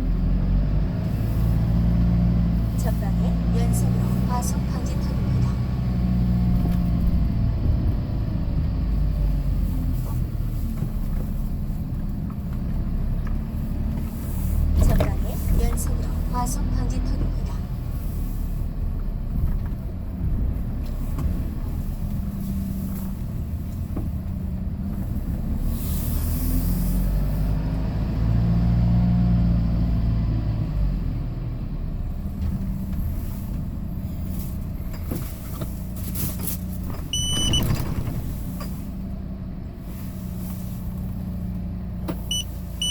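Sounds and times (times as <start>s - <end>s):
truck engine droning: 0.0s - 42.9s
short electronic beep: 37.1s - 37.7s, 42.3s - 42.9s.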